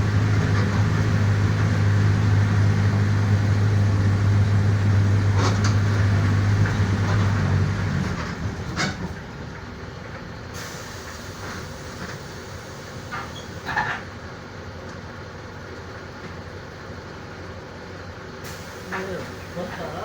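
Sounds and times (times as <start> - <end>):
bus diesel engine droning: 0.0 - 20.0
air brake hiss: 10.6 - 13.7, 18.4 - 19.8.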